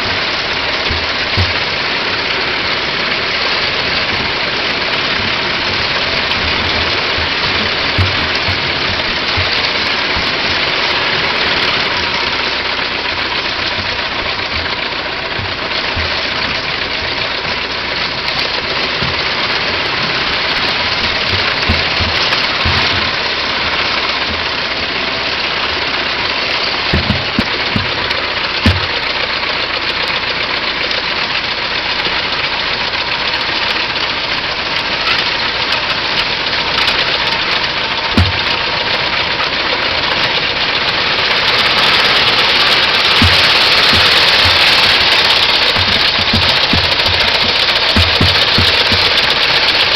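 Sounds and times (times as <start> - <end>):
car engine running: 0.0 - 49.9
short low thumps: 5.2 - 25.8, 42.0 - 49.8.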